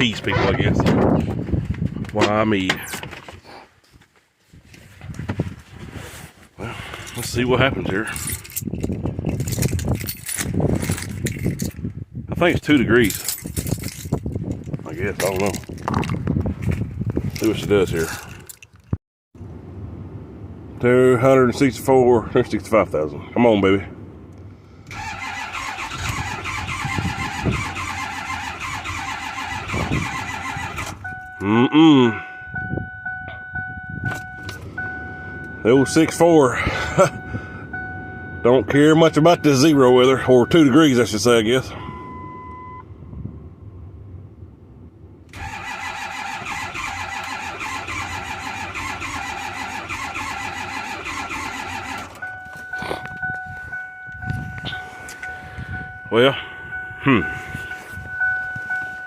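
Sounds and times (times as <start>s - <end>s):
engine starter cranking: 24.9s - 31.1s, 45.3s - 52.4s.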